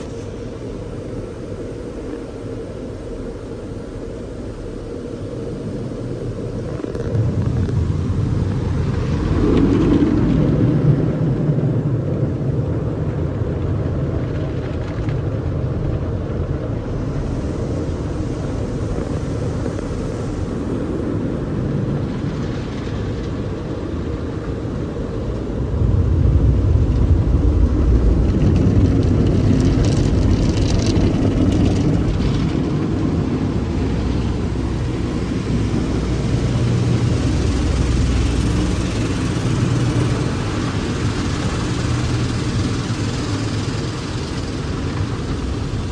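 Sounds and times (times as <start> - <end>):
high hiss: 0.0 - 9.8, 16.8 - 25.2, 29.8 - 45.9
car wash rumble: 0.0 - 45.9.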